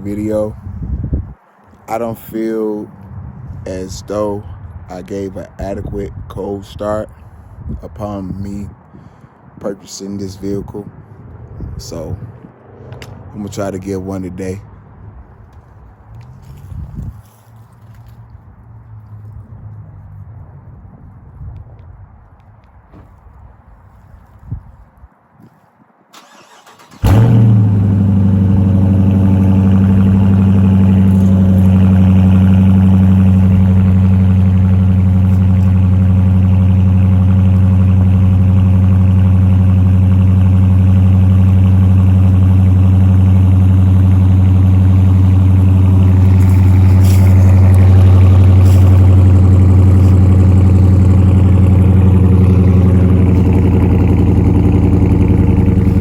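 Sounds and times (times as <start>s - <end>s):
car engine starting and idling: 26.2s - 56.0s.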